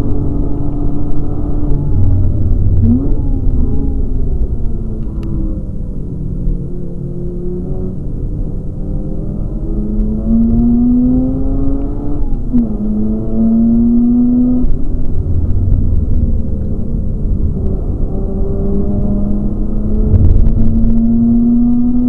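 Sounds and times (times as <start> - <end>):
rotary engine revving in cabin: 17.4 - 22.0.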